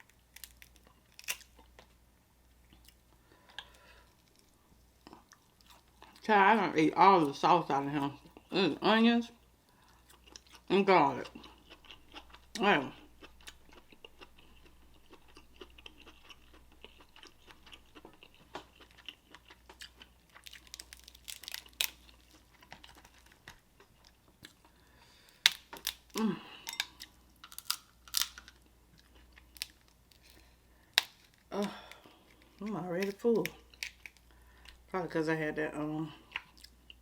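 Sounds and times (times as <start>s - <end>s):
person chewing food: 0.0s - 2.0s, 2.6s - 6.2s, 9.6s - 34.9s, 36.2s - 37.0s
person humming: 26.2s - 26.7s.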